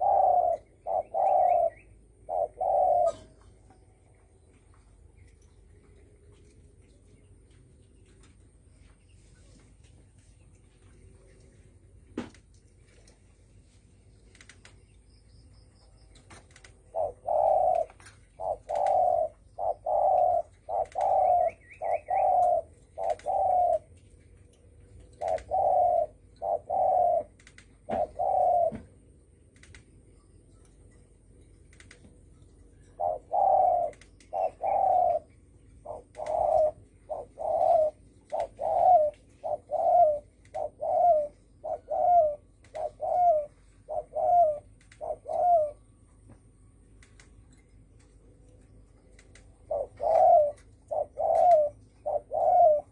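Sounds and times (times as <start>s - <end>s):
dove cooing: 0.0s - 3.8s, 16.6s - 24.0s, 25.0s - 29.0s, 32.8s - 46.0s, 49.6s - 52.9s.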